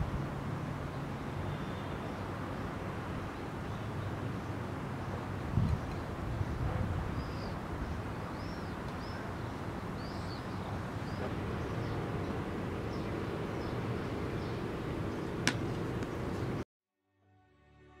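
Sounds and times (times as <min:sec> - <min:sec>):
low background rumble: 0:11.0 - 0:16.6.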